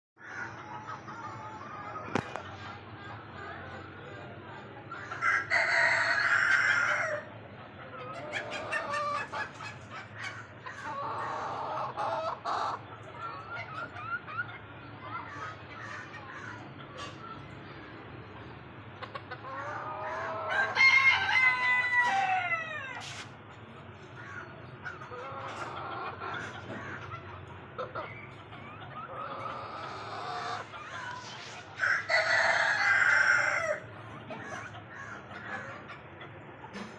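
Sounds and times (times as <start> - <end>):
chickens clucking: 0.2 - 36.9
rooster crowing: 20.5 - 23.0, 31.8 - 33.8.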